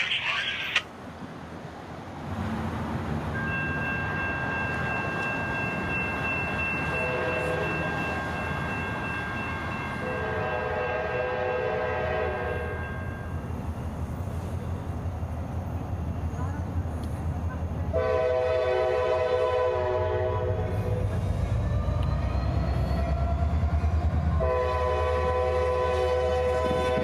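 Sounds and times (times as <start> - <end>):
diesel locomotive engine rumble: 0.0 - 27.0
train air horn: 7.0 - 7.8, 10.0 - 12.8, 17.9 - 21.0, 24.4 - 27.0.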